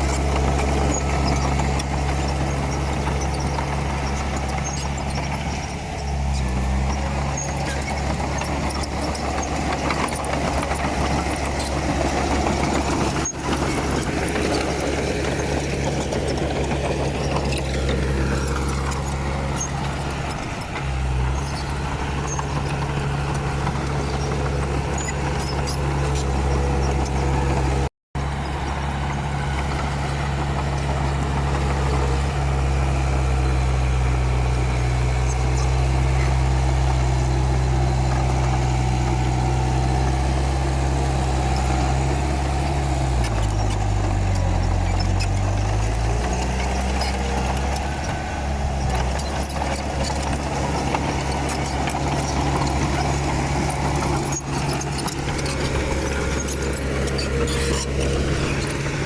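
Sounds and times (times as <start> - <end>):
bulldozer diesel engine running: 0.0 - 59.0
light clatter: 41.1 - 59.0.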